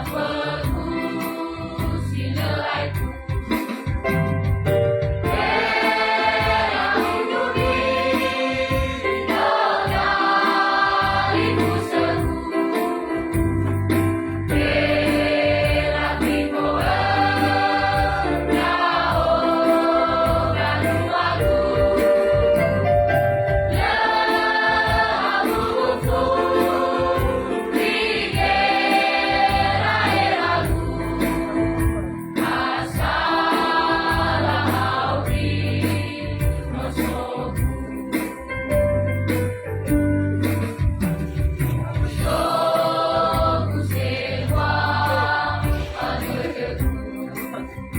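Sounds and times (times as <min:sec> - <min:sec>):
choir singing: 0:00.0 - 0:03.7, 0:05.3 - 0:22.8, 0:23.7 - 0:38.4, 0:42.1 - 0:47.6.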